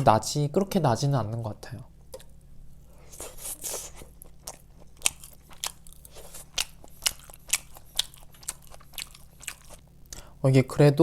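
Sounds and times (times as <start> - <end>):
chewing crispy food: 3.2 - 10.2.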